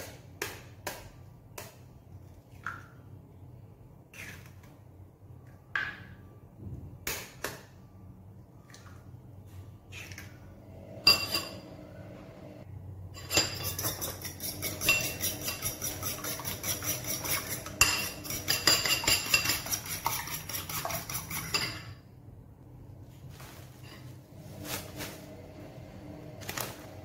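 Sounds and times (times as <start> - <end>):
utensil beating eggs in bowl: 13.4 - 21.8.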